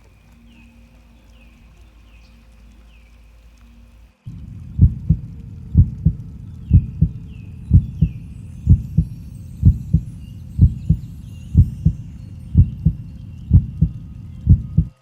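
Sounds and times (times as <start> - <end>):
low hum: 0.0 - 15.0
heartbeat thumps: 4.3 - 15.0.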